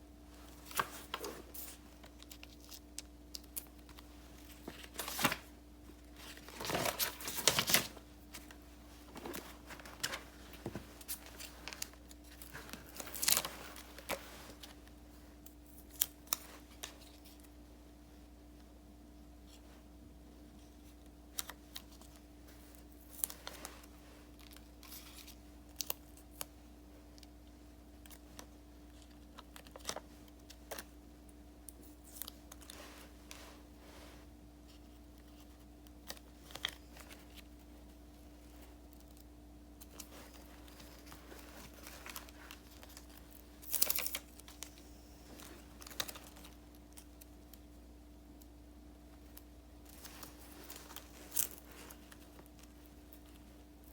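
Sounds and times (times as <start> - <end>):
faint steady hum: 0.0 - 53.9
paper and stickers handled: 0.3 - 17.6, 20.6 - 53.9
paper rustle: 0.4 - 15.0, 39.8 - 47.3, 49.3 - 53.9.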